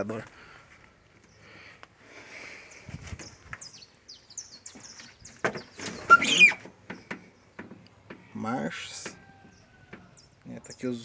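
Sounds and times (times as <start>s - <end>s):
small birds chirping: 0.8s - 11.0s
footsteps climbing metal steps: 5.4s - 10.2s.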